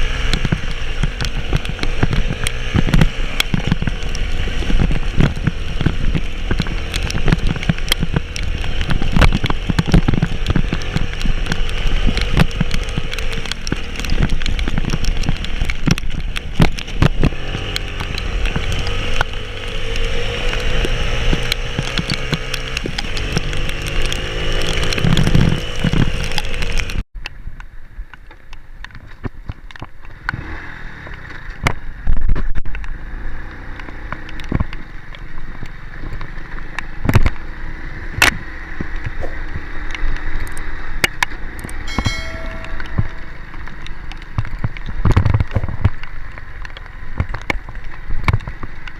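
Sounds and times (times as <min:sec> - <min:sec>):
vehicle engine labouring: 0:00.0 - 0:27.0
knocks and rattles: 0:40.4 - 0:46.0.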